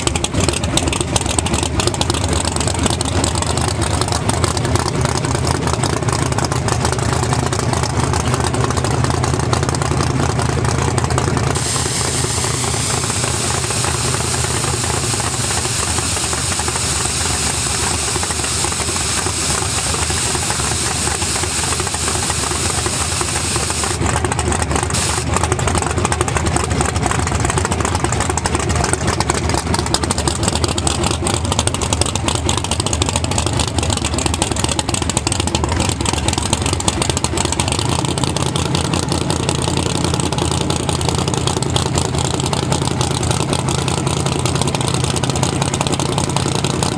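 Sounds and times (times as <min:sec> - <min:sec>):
drag racing engine running loudly: 0:00.0 - 0:46.9
steady hiss: 0:11.6 - 0:24.0, 0:25.0 - 0:25.2.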